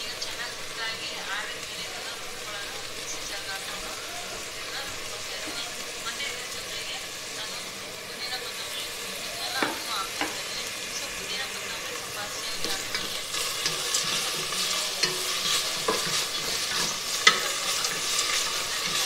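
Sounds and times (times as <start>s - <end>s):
food sizzling in oil: 0.0s - 19.0s
wooden spatula scraping a pan: 12.0s - 19.0s.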